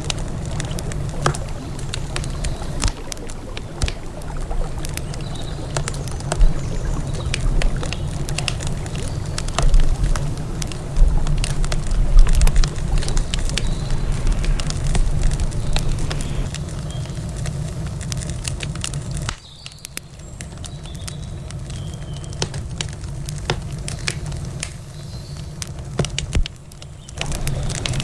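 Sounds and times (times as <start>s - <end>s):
low rumble: 0.0s - 17.8s
campfire crackling: 0.0s - 28.0s.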